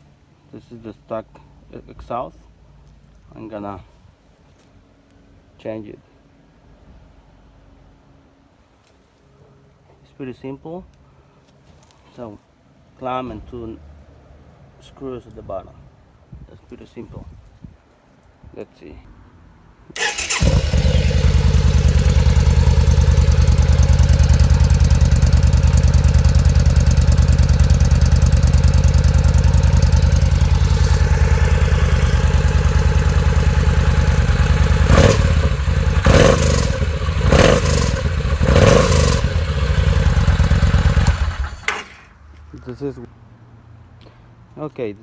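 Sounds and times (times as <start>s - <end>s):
motorcycle engine idling: 20.0s - 42.0s
motorcycle throttle blips: 20.0s - 42.0s.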